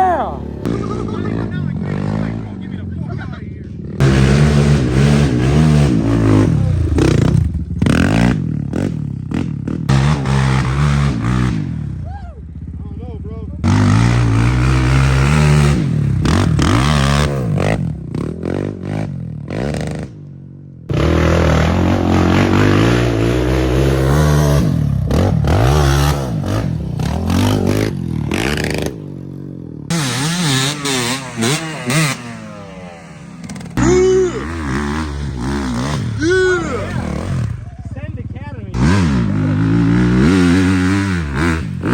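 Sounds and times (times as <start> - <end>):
quad engine revving: 0.0 - 20.2, 20.9 - 41.9.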